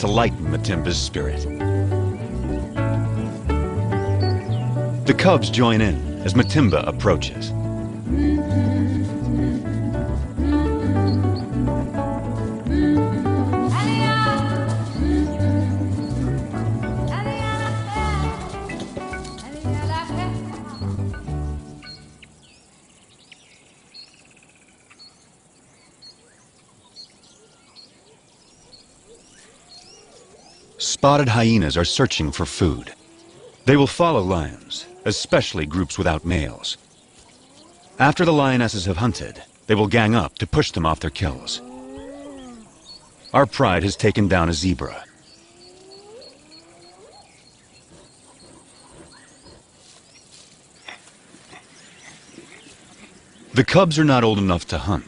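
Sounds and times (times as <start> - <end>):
bird chirps and calls: 0.0 - 6.9, 13.7 - 38.2, 41.6 - 53.6
low background hiss: 0.0 - 55.0
hyena whooping: 41.4 - 42.9, 45.4 - 49.6
whistled bird calls: 44.9 - 50.3.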